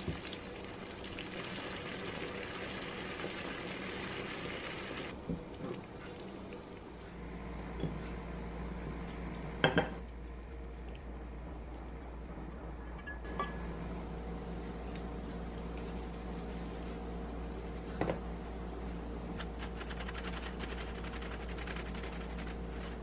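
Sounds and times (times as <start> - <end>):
cookware clinking on a plate: 9.6 - 10.0.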